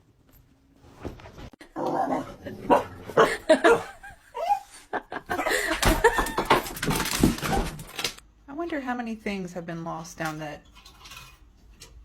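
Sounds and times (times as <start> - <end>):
people laughing: 3.2 - 6.6.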